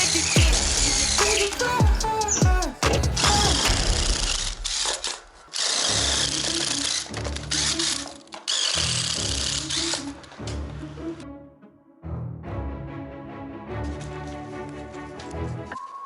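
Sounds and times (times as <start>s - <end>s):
rap music: 0.0s - 5.4s
power drill running: 4.1s - 10.4s.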